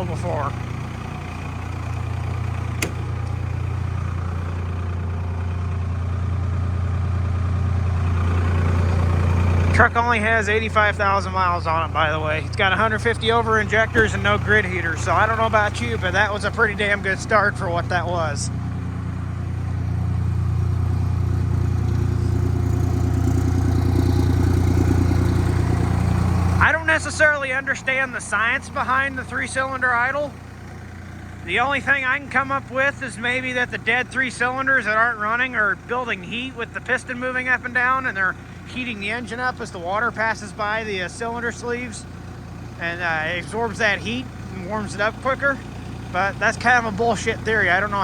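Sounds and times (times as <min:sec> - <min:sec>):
diesel truck engine idling: 0:00.0 - 0:48.0
sharp click: 0:02.7 - 0:03.6, 0:14.0 - 0:14.6.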